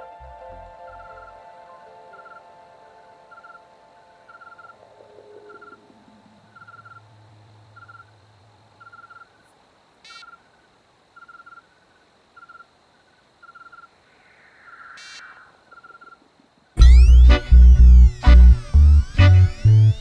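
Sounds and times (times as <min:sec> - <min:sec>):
low bass note: 0:00.0 - 0:01.3, 0:16.8 - 0:20.0.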